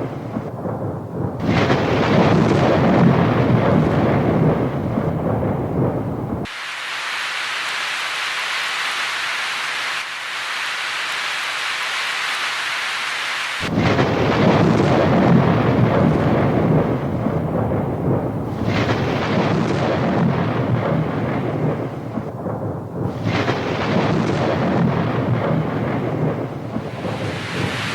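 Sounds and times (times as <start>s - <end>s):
rolling thunder rumble: 0.0s - 6.5s, 13.6s - 27.9s
rain hissing: 0.0s - 22.4s, 23.0s - 27.9s.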